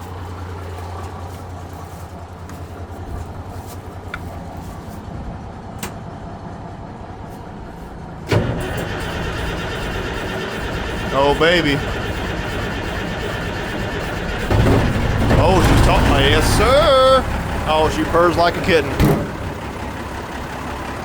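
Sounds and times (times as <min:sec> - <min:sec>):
truck engine cranking on starter: 0:00.0 - 0:04.8, 0:05.6 - 0:21.0
truck engine firing up: 0:00.0 - 0:21.0.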